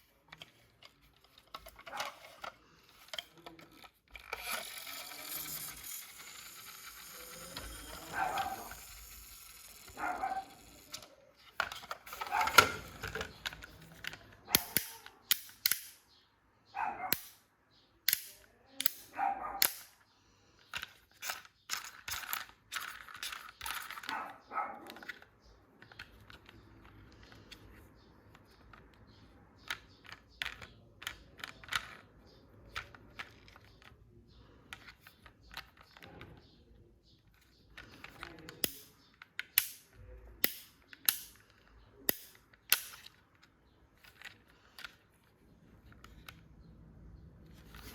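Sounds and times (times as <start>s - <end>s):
plastic and cardboard snapping: 42.1s - 43.1s.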